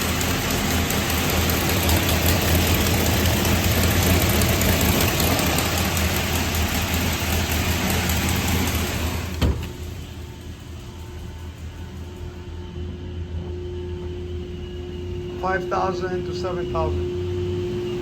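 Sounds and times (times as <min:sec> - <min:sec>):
engine idling with exhaust leak: 0:00.0 - 0:12.4.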